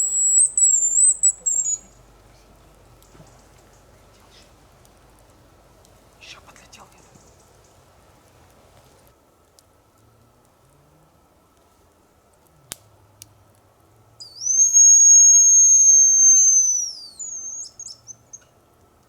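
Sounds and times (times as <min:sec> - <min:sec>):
high decoy whistle: 0:00.0 - 0:02.0, 0:14.2 - 0:18.4.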